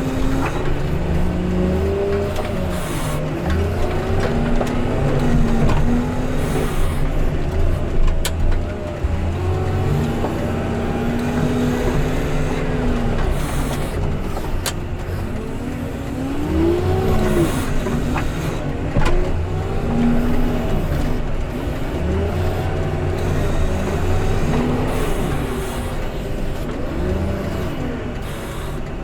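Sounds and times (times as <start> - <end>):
snow-clearing machine engine: 0.0 - 29.0.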